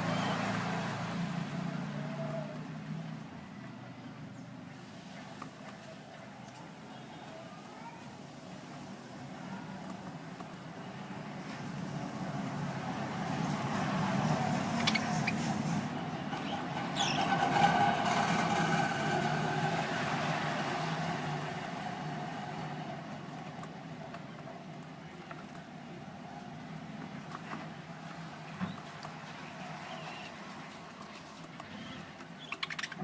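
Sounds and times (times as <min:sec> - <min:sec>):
vehicle passing by: 0:00.0 - 0:03.8, 0:10.9 - 0:32.2
high bird chirps: 0:14.7 - 0:15.6, 0:31.7 - 0:33.0.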